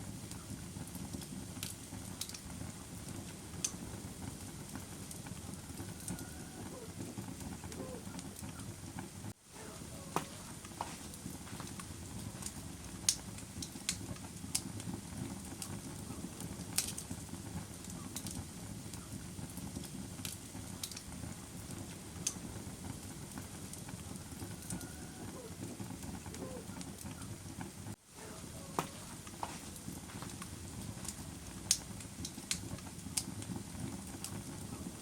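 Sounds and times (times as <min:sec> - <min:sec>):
fire crackling and popping: 0:00.0 - 0:35.0
low rush of fire: 0:00.0 - 0:35.0.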